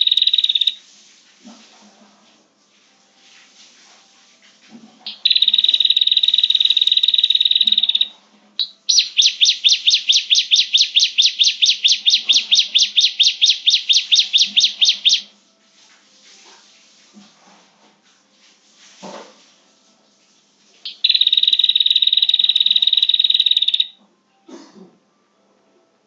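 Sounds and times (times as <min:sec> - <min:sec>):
bird call buzzing trill and chirps: 0:00.0 - 0:00.8, 0:05.1 - 0:15.3, 0:20.9 - 0:24.0.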